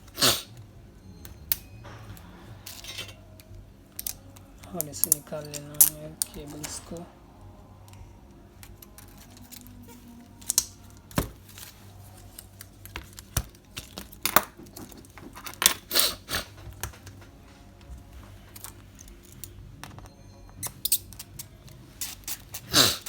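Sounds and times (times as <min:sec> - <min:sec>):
faint low hum: 0:00.0 - 0:15.6.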